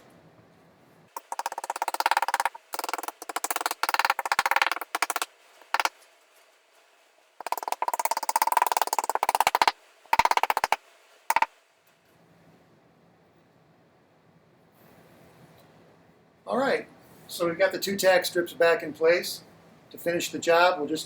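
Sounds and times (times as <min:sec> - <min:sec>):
hammering metal tack strip: 0:01.2 - 0:05.9, 0:07.4 - 0:11.5.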